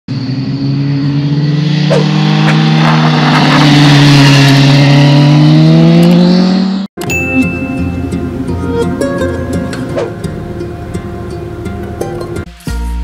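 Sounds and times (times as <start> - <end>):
motorcycle engine at high revs: 0.1 - 6.9.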